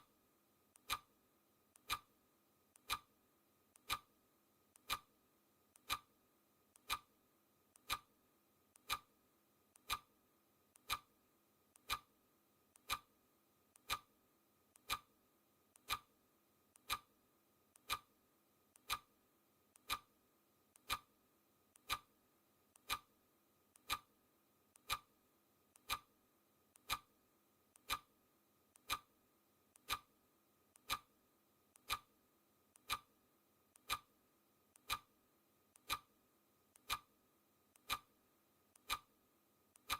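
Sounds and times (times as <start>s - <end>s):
clock ticking: 0.8s - 1.1s, 1.8s - 2.1s, 2.8s - 3.1s, 3.8s - 4.1s, 4.8s - 5.1s, 5.8s - 6.1s, 6.8s - 7.1s, 7.8s - 8.2s, 8.8s - 9.1s, 9.8s - 10.1s, 10.8s - 11.1s, 11.8s - 12.1s, 12.8s - 13.1s, 13.8s - 14.1s, 14.8s - 15.1s, 15.8s - 16.1s, 16.8s - 17.1s, 17.8s - 18.2s, 18.8s - 19.1s, 19.8s - 20.2s, 20.8s - 21.2s, 21.8s - 22.2s, 22.8s - 23.2s, 23.8s - 24.2s, 24.8s - 25.2s, 25.8s - 26.1s, 26.8s - 27.2s, 27.8s - 28.1s, 28.8s - 29.2s, 29.8s - 30.2s, 30.8s - 31.2s, 31.8s - 32.2s, 32.8s - 33.2s, 33.8s - 34.2s, 34.8s - 35.2s, 35.8s - 37.2s, 37.8s - 38.2s, 38.8s - 39.2s.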